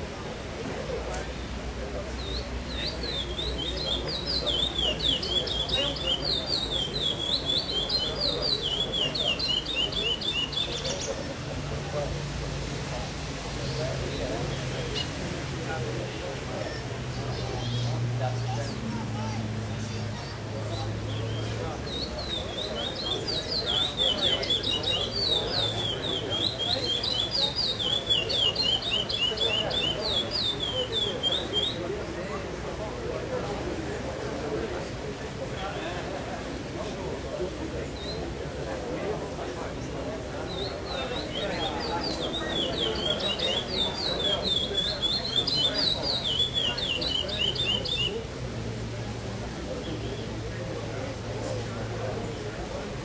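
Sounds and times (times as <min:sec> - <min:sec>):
crowd chatter: 0:00.0 - 0:53.0
finch singing whistled notes: 0:02.2 - 0:11.2, 0:20.7 - 0:31.8, 0:40.5 - 0:48.2.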